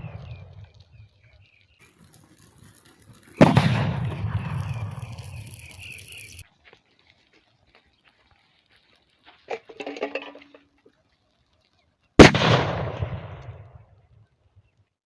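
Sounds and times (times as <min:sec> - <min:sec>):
firecracker bang: 0:03.1 - 0:06.4, 0:12.2 - 0:13.8
short rattle: 0:09.4 - 0:10.9.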